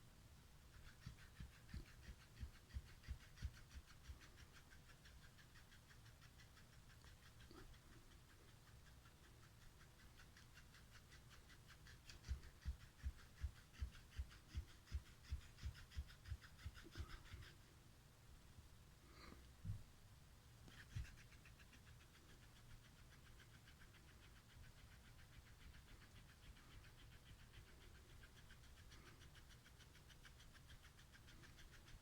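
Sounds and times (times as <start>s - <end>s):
cat pulsing rasp: 0.6s - 17.8s, 20.6s - 32.0s.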